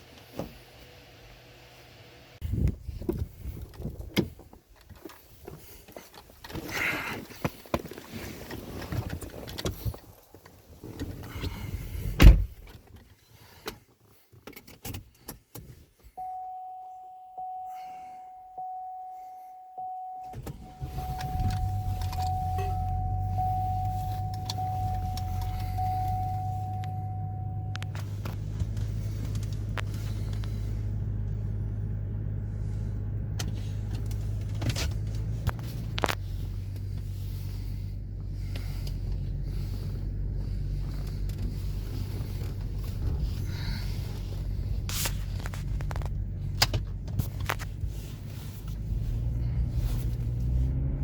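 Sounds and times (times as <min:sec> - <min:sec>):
electronic chime: 0:16.2 - 0:27.9
engine running: 0:19.8 - 0:51.0.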